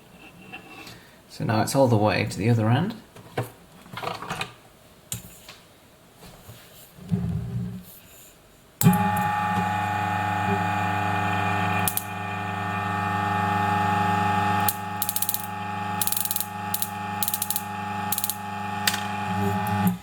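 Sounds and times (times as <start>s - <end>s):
coffee grinder motor hum: 8.8s - 20.0s.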